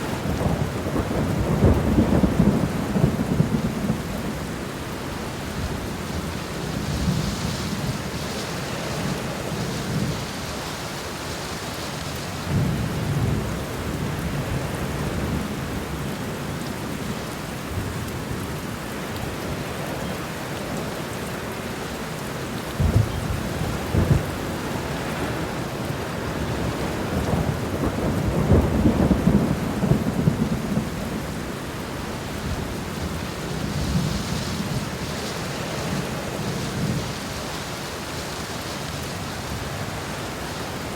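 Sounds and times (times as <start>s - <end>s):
thunder rumbling: 0.0s - 10.3s, 22.7s - 37.5s
steady rain falling: 0.0s - 40.9s
sharp thunder cracks: 22.8s - 25.4s.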